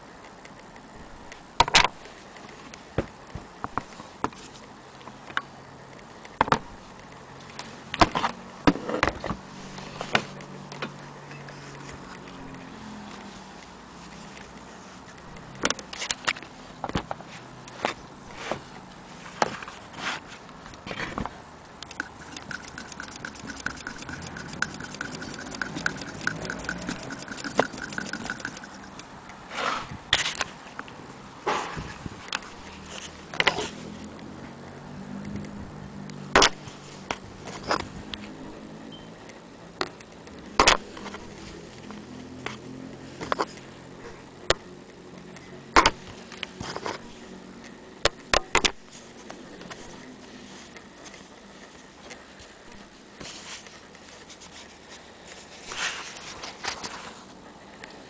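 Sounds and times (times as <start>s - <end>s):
sewing machine clicking: 21.9s - 29.1s.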